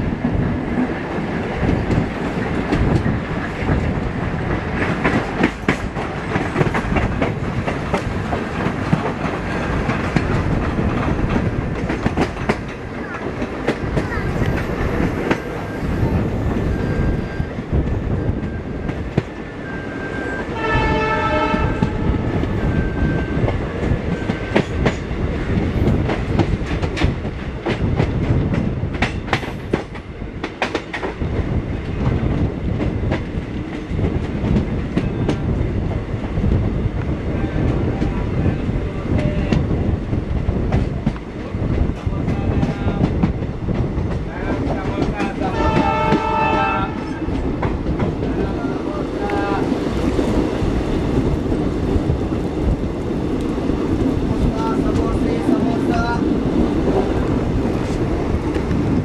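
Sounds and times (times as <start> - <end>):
train rumble: 0.0 - 59.0
train horn: 20.0 - 22.5, 45.4 - 47.4.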